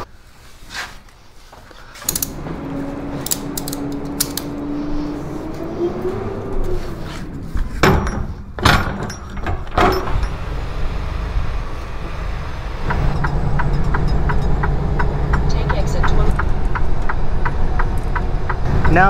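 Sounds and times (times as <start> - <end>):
truck engine running: 2.1 - 8.4, 9.6 - 19.0
truck doors banging: 2.1 - 11.3
even ticking: 12.9 - 19.0.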